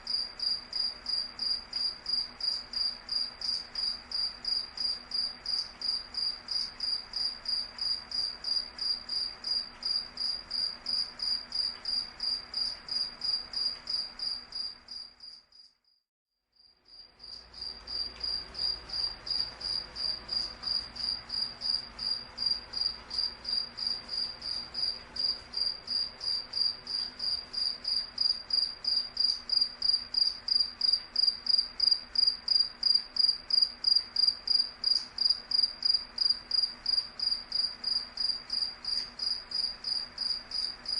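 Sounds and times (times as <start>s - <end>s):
cricket chirping: 0.0s - 16.0s, 16.6s - 40.9s.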